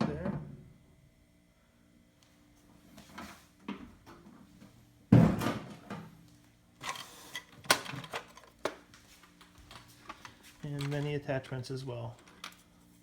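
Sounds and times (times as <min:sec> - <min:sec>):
clatter of accessories: 0:09.4 - 0:12.7.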